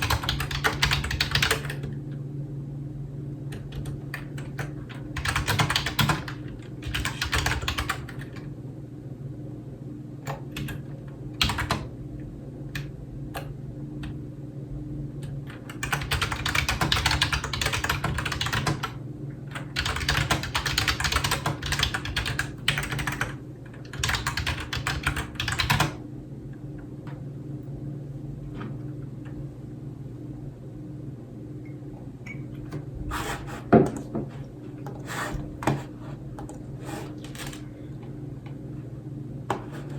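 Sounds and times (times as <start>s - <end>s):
typing on a keyboard: 0.0s - 1.9s, 3.6s - 8.4s, 11.4s - 11.9s, 15.6s - 26.0s
steady low hum: 0.0s - 39.9s.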